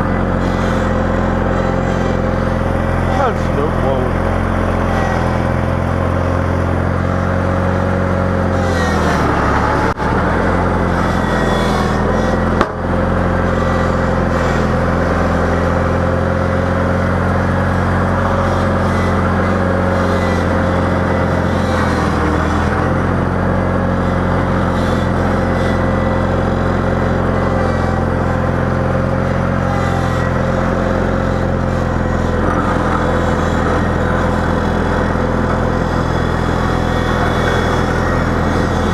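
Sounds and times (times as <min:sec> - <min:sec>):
steady whine: 0:00.0 - 0:24.5, 0:30.8 - 0:38.9
garden tractor engine running: 0:00.0 - 0:38.9.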